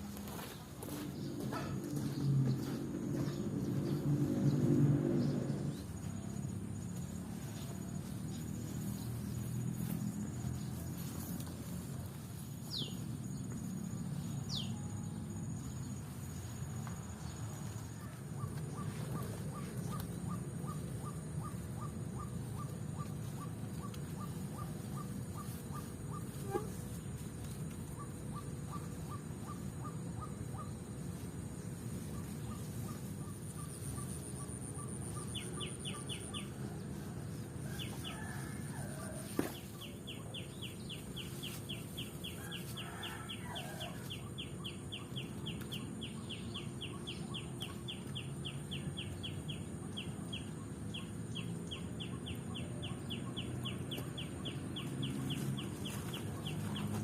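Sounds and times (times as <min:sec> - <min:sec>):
birds calling repeated notes: 0:32.2 - 0:36.5.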